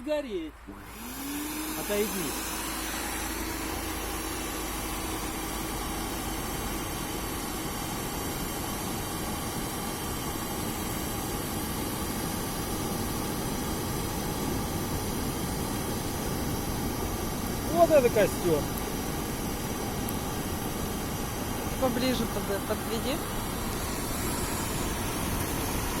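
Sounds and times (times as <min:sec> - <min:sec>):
faint machine hum: 0:00.0 - 0:26.0
air rushing into bonfire: 0:12.1 - 0:26.0.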